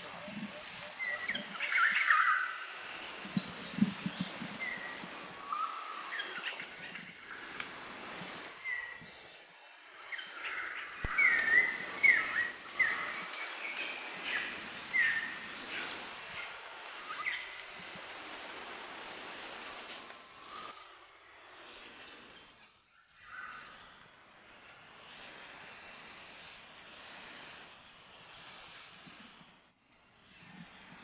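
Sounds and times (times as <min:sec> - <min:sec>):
wild birds chirping: 0:00.0 - 0:29.6.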